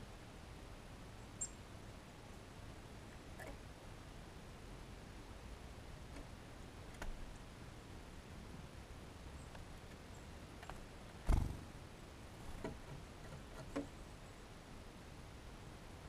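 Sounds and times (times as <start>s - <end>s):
low steady background: 0.0s - 16.0s
birds pecking at a feeder: 10.6s - 14.0s.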